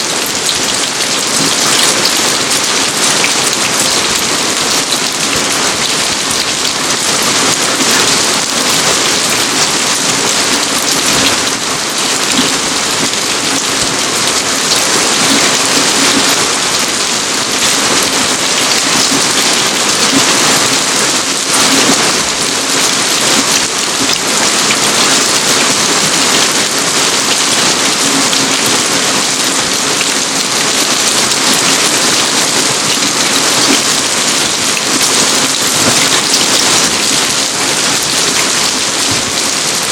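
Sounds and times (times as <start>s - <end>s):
rain pattering outdoors: 0.0s - 39.9s.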